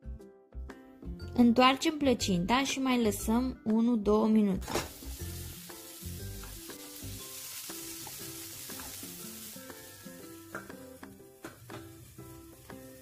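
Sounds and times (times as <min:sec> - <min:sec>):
gentle guitar music: 0:03.4 - 0:13.0
pie sizzling in a pan: 0:04.6 - 0:13.0.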